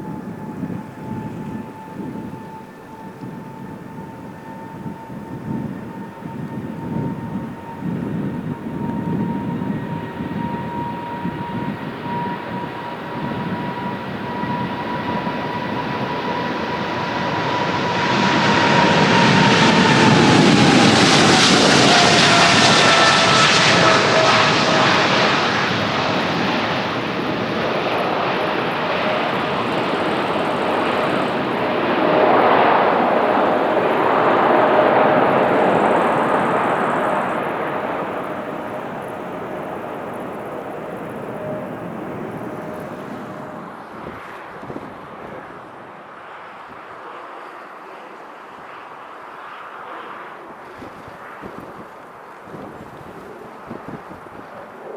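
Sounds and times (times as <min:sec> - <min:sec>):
high engine whine: 0:00.0 - 0:46.0
jet engines at takeoff power: 0:00.0 - 0:54.9.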